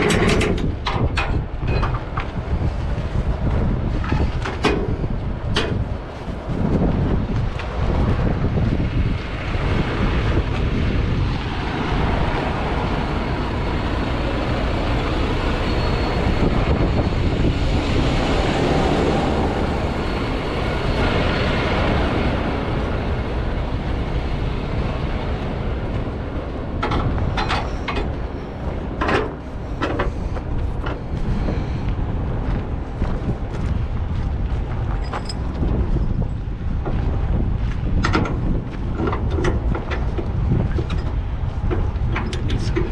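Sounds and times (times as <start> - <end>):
steady loud rumbling: 0.0 - 42.9
metal chain clanking: 35.0 - 36.2.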